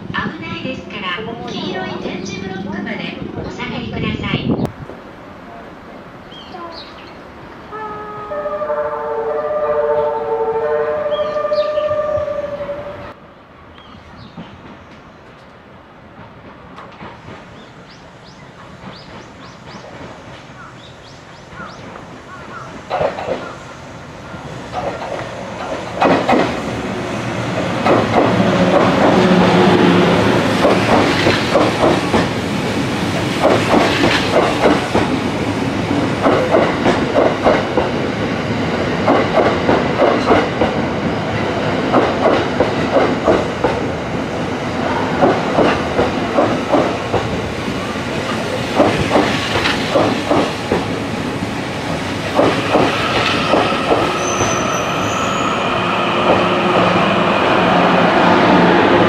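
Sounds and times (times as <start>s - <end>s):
train wheels clacking over rail joints: 21.6s - 23.5s, 24.7s - 26.7s, 27.5s - 35.3s, 35.9s - 38.0s, 38.6s - 40.8s, 41.8s - 43.9s, 45.0s - 47.5s, 48.2s - 51.1s, 51.8s - 54.6s.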